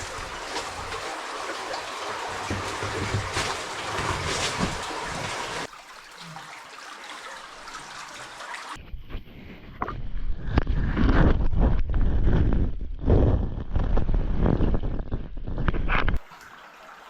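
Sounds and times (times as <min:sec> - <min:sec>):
stream water rushing: 0:00.0 - 0:08.8.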